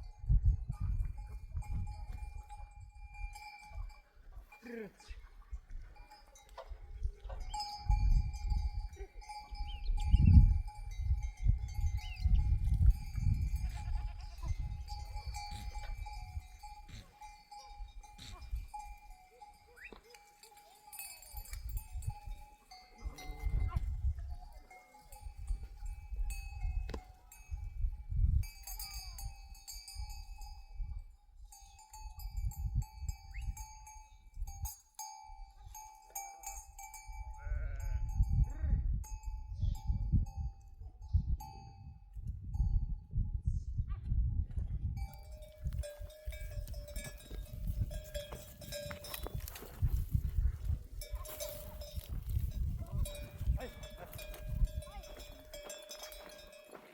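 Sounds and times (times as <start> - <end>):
sheep bells clanking: 0.0 - 43.0, 45.0 - 56.9
sheep bleating: 13.5 - 14.8, 37.4 - 38.8.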